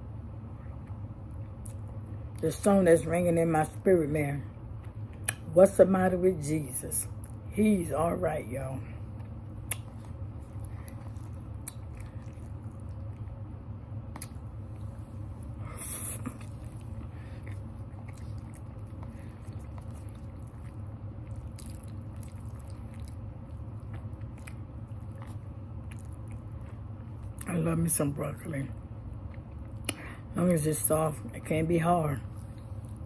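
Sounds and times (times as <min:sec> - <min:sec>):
steady low hum: 0:00.0 - 0:33.0
chewing and mouth sounds: 0:00.6 - 0:02.0, 0:09.1 - 0:27.5, 0:29.1 - 0:30.2, 0:32.2 - 0:33.0.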